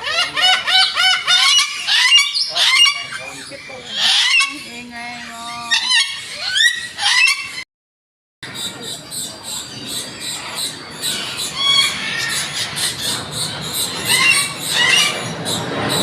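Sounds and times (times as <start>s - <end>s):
birds squeaking and squawking: 0.0s - 7.6s, 8.5s - 16.0s
steady background noise: 8.5s - 16.0s.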